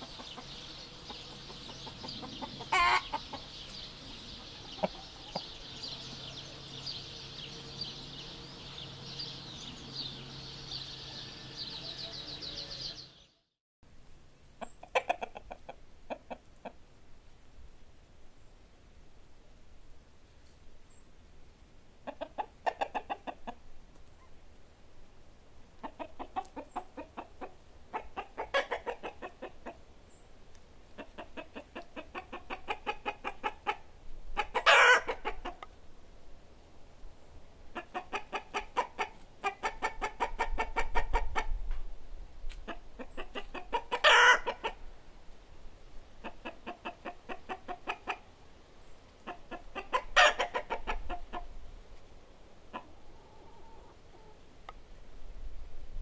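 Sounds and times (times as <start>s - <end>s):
hen cackling: 0.0s - 3.5s, 4.5s - 5.9s, 25.8s - 29.8s, 31.0s - 35.6s, 37.7s - 41.6s, 42.7s - 44.8s, 49.2s - 51.5s
hens clucking: 0.0s - 5.6s, 14.6s - 16.8s, 22.0s - 23.6s, 25.8s - 29.8s, 31.0s - 35.7s, 37.7s - 41.6s, 42.6s - 44.9s, 46.2s - 48.3s, 49.2s - 51.6s, 52.7s - 54.4s.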